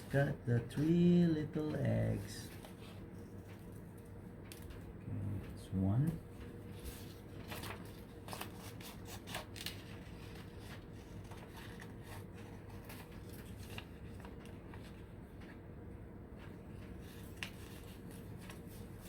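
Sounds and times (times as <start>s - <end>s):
scissors cutting paper: 7.0s - 14.9s.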